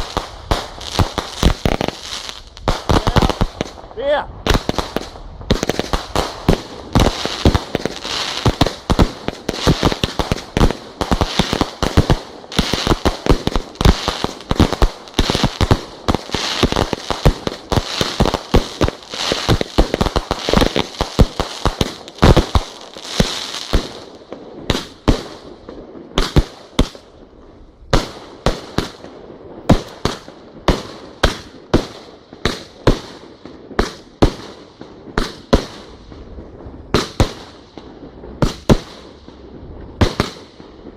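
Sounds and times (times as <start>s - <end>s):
fireworks bangs: 0.0s - 27.2s, 27.8s - 40.9s
crackling hiss: 0.0s - 40.9s.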